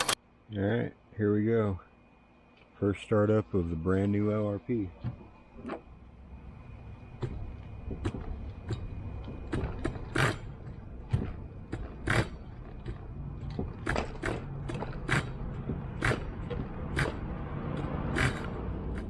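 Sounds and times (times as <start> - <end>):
nitro engine pull start ratcheting: 7.3 - 19.0.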